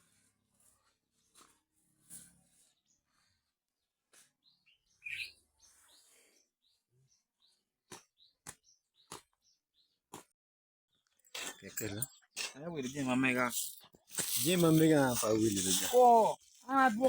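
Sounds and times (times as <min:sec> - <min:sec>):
faint bird chirps: 0:04.2 - 0:09.2.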